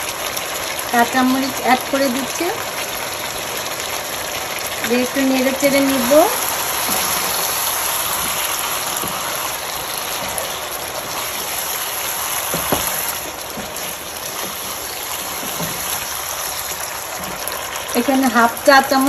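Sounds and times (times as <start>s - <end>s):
food sizzling in a frying pan: 0.0s - 19.0s
wooden spatula scraping: 6.0s - 17.6s.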